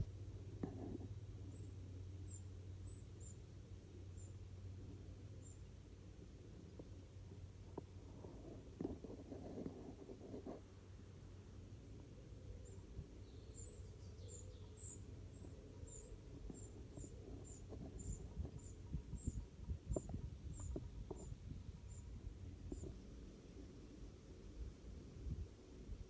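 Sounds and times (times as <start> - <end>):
bird chicks cheeping: 12.6 - 22.9.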